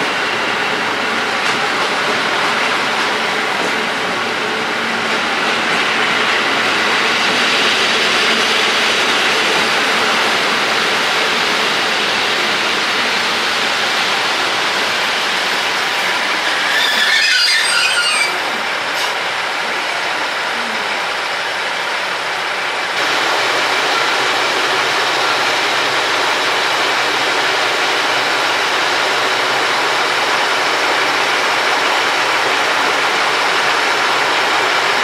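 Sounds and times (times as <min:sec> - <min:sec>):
train wheels rumbling on rail: 0:00.0 - 0:35.0
high wheel squeal: 0:16.0 - 0:19.1.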